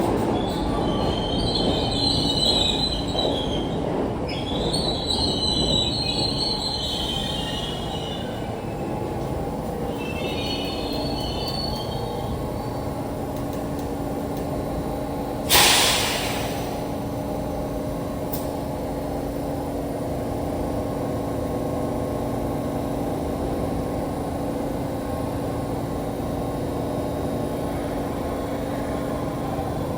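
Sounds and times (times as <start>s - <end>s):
train wheels squealing: 0.0s - 13.0s
standing train humming: 0.0s - 29.9s
brake air hiss: 15.4s - 17.0s.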